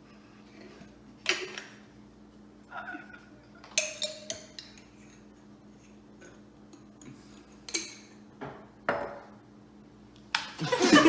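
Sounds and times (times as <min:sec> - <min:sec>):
faint steady hum: 0:00.0 - 0:11.0
utensils clinking against dish: 0:03.6 - 0:05.2.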